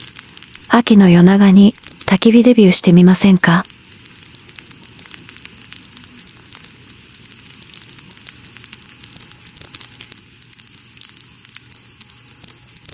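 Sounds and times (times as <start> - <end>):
campfire crackling: 0.0 - 12.9
steady hiss: 0.0 - 12.9.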